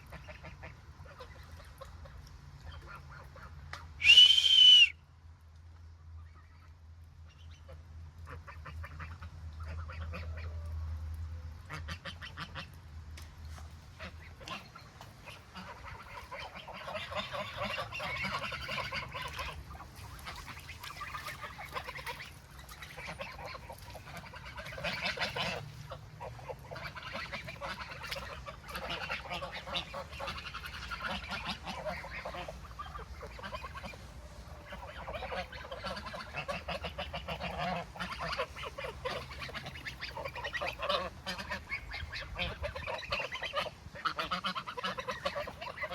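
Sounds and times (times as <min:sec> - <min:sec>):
ducks quacking: 0:00.0 - 0:04.9, 0:06.2 - 0:10.8, 0:11.6 - 0:12.8, 0:13.5 - 0:45.9
geese honking: 0:13.9 - 0:45.9.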